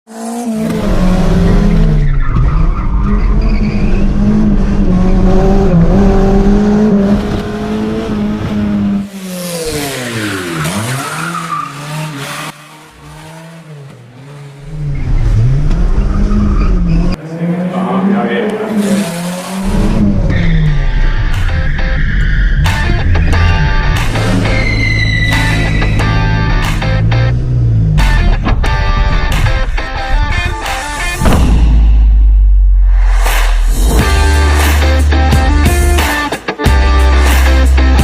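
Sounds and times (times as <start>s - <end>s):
car engine revving: 0.1s - 38.0s
tyre squeal: 24.2s - 26.5s.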